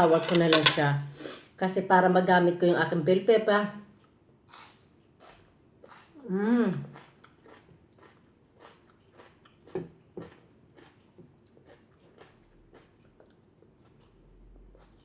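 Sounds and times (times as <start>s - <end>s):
person chewing food: 4.0s - 15.0s.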